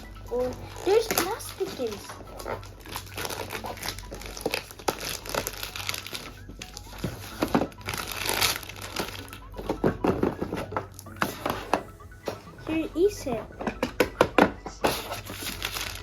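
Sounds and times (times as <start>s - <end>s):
plastic packaging crinkling: 0.6s - 11.6s, 14.8s - 16.0s.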